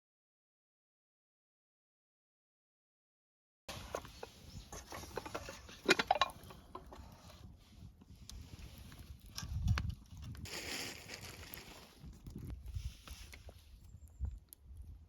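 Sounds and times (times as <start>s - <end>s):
objects knocking and clattering: 4.7s - 7.0s.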